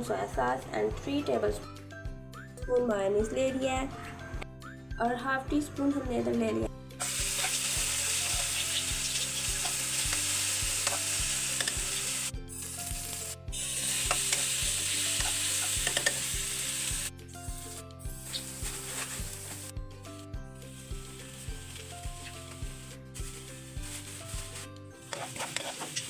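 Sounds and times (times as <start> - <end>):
background music with a beat: 0.4 - 26.0
food sizzling in a frying pan: 7.0 - 19.7, 20.6 - 26.0.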